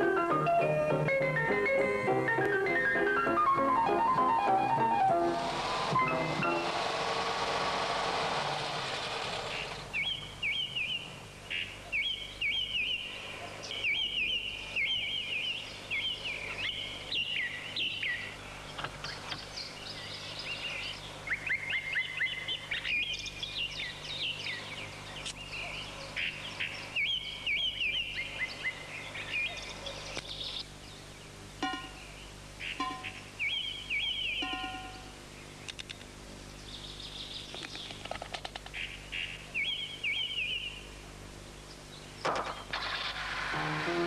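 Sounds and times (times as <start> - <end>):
music: 0.0 - 6.8, 43.6 - 44.0
songbirds chirping: 0.0 - 44.0.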